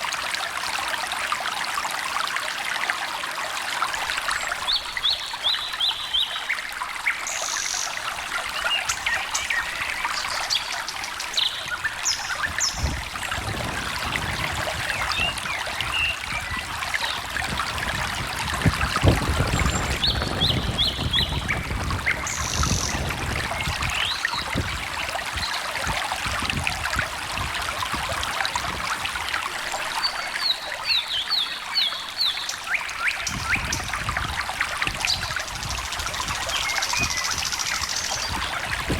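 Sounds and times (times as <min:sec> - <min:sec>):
stream trickling and babbling: 0:00.0 - 0:38.9
songbirds singing: 0:04.3 - 0:17.5, 0:19.0 - 0:25.8, 0:29.7 - 0:38.9.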